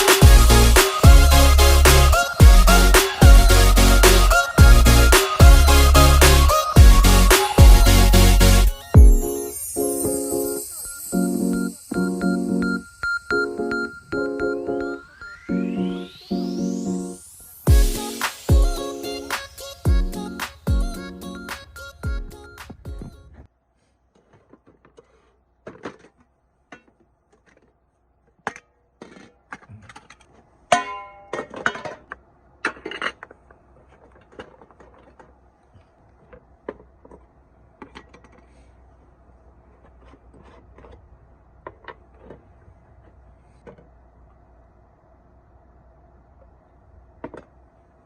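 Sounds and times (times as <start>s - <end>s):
ringing metallic clank: 30.7s - 31.9s.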